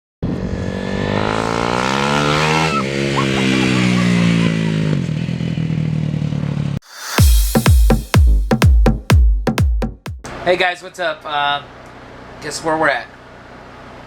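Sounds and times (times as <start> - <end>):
dirt bike engine accelerating: 0.2 - 6.8.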